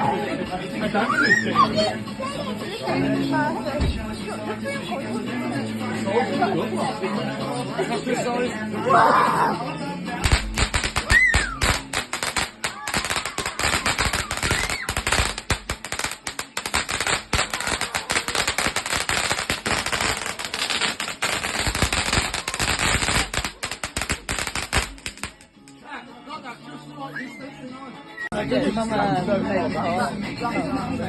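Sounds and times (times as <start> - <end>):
fireworks cracking and banging: 10.2 - 25.6.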